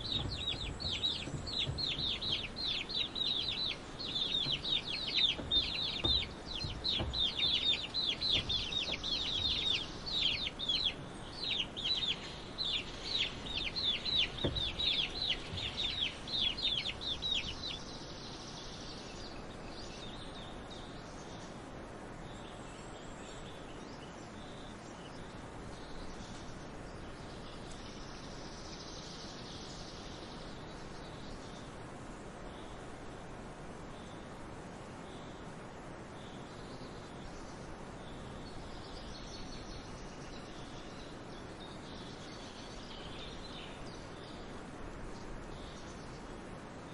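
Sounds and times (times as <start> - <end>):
baby chicks peeping: 0.0 - 17.9
faint steady background noise: 0.0 - 46.9.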